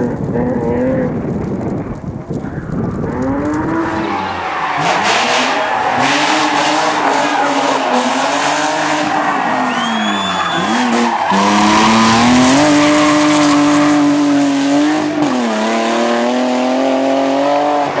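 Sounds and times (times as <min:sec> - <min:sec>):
car engine at high revs: 0:00.0 - 0:18.0
tyre squeal: 0:03.9 - 0:14.2.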